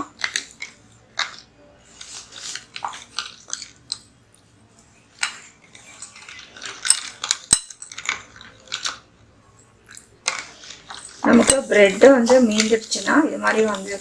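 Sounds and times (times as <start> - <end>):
spoon scraping and clinking bowl: 10.6 - 14.0.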